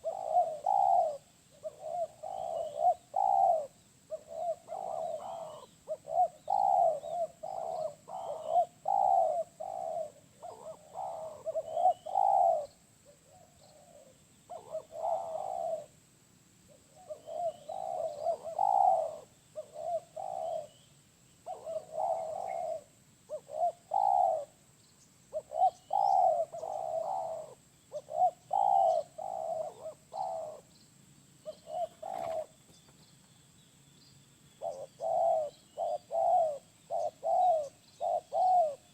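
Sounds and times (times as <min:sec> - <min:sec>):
small birds chirping: 0:00.0 - 0:15.9, 0:16.6 - 0:38.9
dove cooing: 0:00.0 - 0:16.0, 0:16.7 - 0:24.6, 0:25.3 - 0:30.7, 0:31.4 - 0:33.0, 0:34.6 - 0:38.9.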